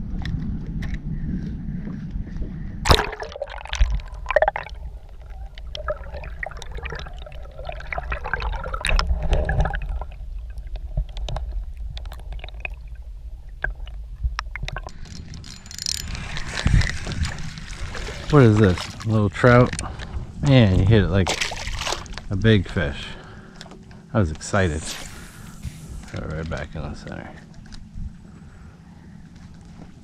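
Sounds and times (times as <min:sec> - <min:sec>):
water splashing against kayak hull: 0:02.9 - 0:12.8, 0:16.6 - 0:19.6, 0:21.2 - 0:22.4.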